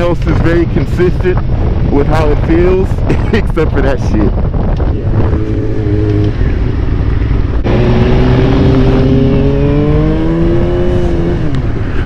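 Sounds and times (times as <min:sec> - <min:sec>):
wind and road noise: 0:00.0 - 0:12.0
motorcycle engine accelerating: 0:04.3 - 0:12.0.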